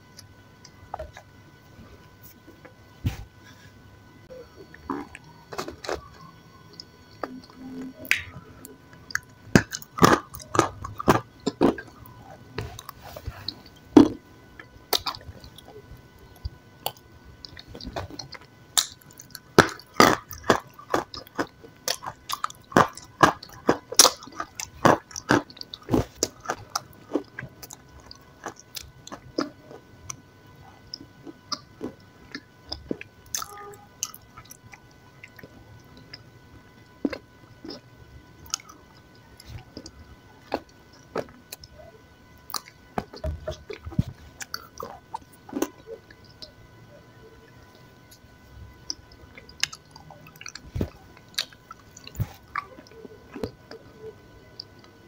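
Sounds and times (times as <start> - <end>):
chewing and mouth smacking: 4.7 - 30.2, 38.4 - 41.7, 42.4 - 46.6, 48.8 - 53.8.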